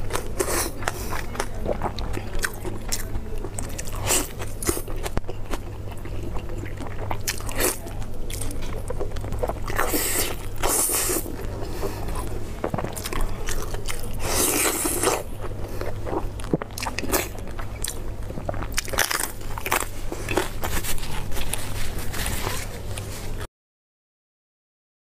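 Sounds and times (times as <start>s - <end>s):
person chewing meat: 0.0s - 23.4s
steady low hum: 0.0s - 23.5s.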